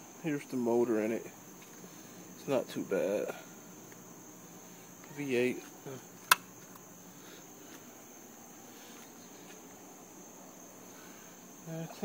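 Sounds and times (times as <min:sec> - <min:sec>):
crickets chirring: 0:00.0 - 0:12.0
sharp click: 0:06.3 - 0:06.5.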